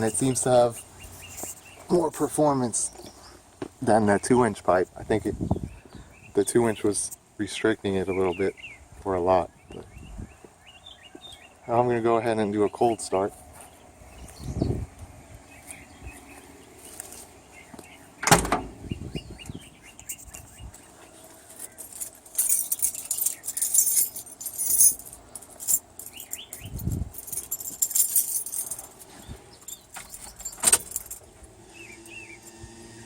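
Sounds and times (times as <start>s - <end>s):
keys jangling: 21.6s - 31.3s.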